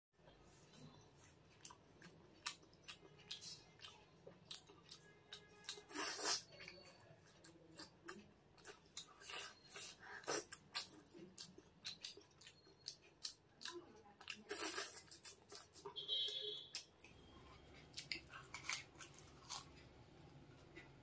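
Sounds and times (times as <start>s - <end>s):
wet chewing with smacking: 1.2s - 19.8s.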